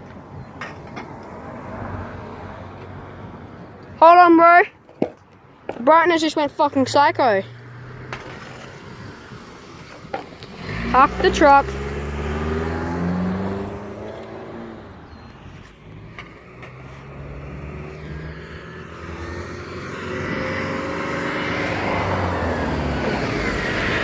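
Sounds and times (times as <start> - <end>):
vehicle approaching: 6.0 - 24.0
vehicle pulling away: 6.8 - 24.0.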